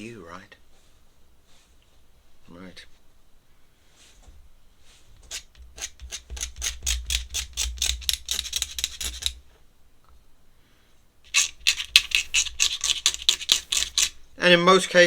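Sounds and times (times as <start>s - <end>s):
pencil strokes scratching paper: 4.9s - 9.4s, 11.3s - 14.4s.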